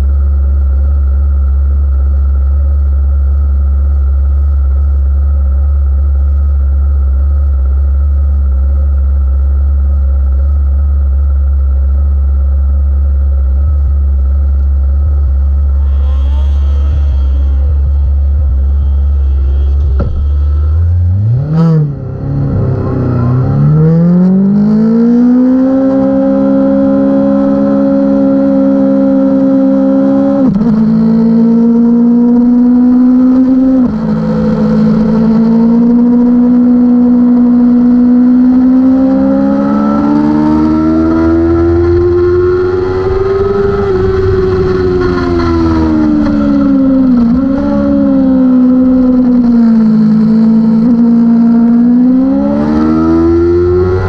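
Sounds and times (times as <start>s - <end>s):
motorcycle engine revving: 13.6s - 54.0s.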